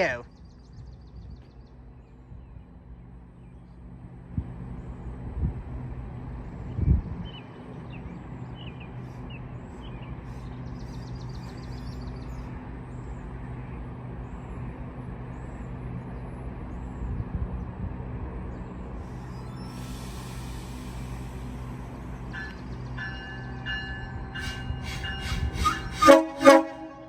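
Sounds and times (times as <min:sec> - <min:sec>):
diesel locomotive engine running: 0:00.0 - 0:27.0
faint bird chirps: 0:08.5 - 0:15.9, 0:18.6 - 0:26.0.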